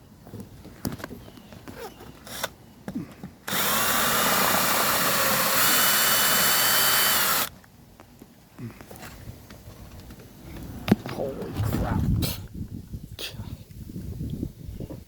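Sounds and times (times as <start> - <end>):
power drill drilling metal rivet: 3.5 - 7.5.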